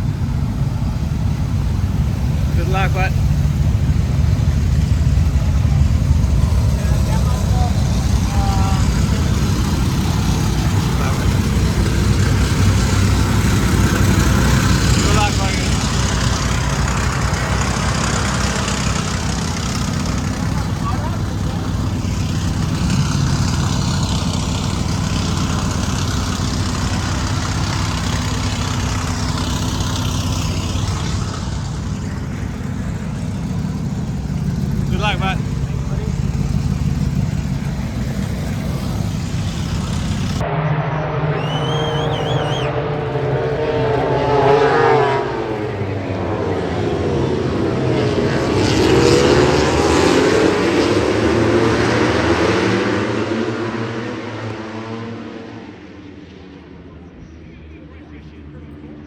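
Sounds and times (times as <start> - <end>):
high whine: 0.0 - 51.0
vehicle engine running: 0.0 - 53.8.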